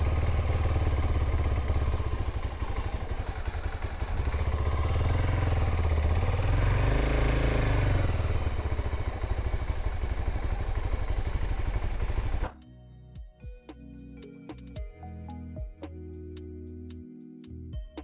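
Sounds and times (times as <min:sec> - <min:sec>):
motorcycle engine idling: 0:00.0 - 0:12.5.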